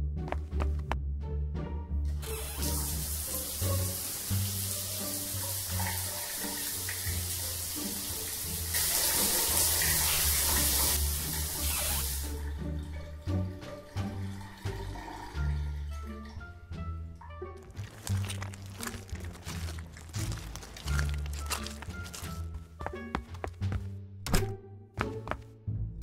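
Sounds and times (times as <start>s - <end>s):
shower spray running: 2.2s - 12.4s.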